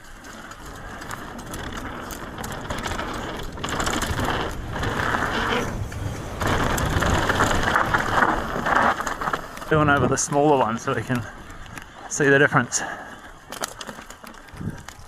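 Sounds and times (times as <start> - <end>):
tyres rolling over gravel: 0.0 - 15.0
bicycle freehub ratcheting: 0.2 - 5.7.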